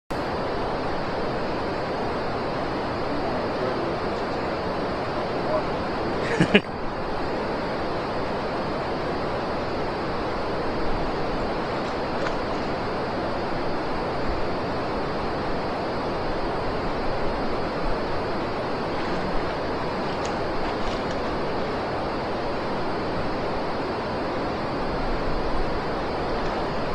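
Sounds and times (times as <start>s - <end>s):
wind: 0.1s - 26.9s
river water rushing: 17.5s - 26.9s.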